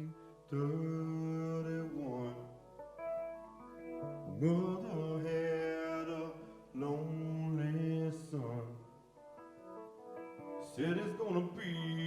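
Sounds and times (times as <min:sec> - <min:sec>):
person singing: 0:00.0 - 0:02.6, 0:04.0 - 0:09.0, 0:10.4 - 0:12.0.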